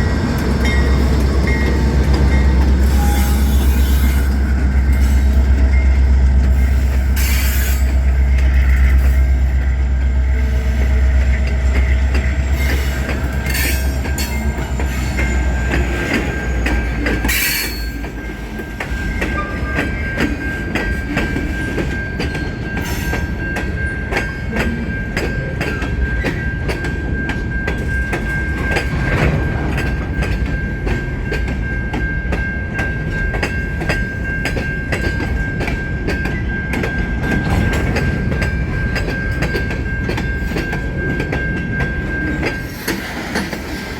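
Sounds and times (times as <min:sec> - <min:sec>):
diesel locomotive engines rumbling: 0:00.0 - 0:43.9
train wheels clickety-clack: 0:00.0 - 0:43.9
high wheel squeal: 0:01.0 - 0:05.3.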